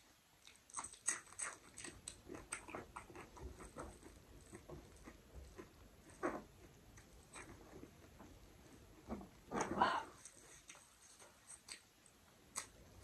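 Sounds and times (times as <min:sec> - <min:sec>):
wet chewing and lip smacks: 0:00.4 - 0:05.8, 0:06.9 - 0:07.6, 0:10.2 - 0:13.0.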